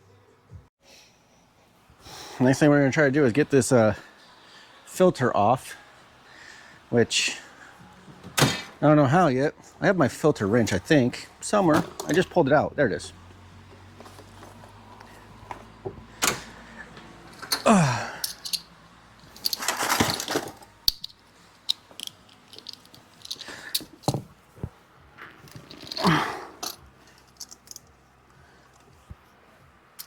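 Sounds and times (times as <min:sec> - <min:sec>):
metal tools clinking and scraping: 0:10.4 - 0:12.4, 0:17.3 - 0:24.3, 0:25.2 - 0:27.9.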